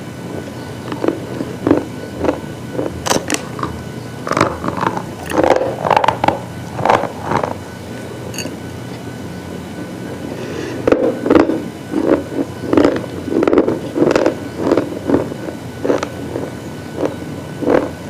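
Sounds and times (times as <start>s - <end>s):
slate crunching: 0.8s - 7.6s, 10.9s - 15.3s.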